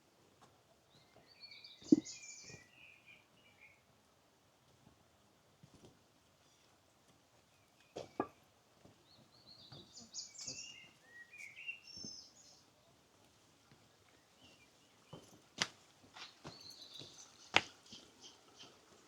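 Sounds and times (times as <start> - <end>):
faint birdsong chirping: 0.6 - 4.2, 6.3 - 19.0.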